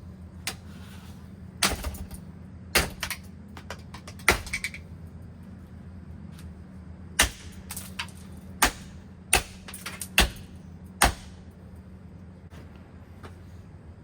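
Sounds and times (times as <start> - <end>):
steady low hum: 0.0 - 14.0
ceiling fan being smashed: 1.6 - 4.8, 7.2 - 11.4.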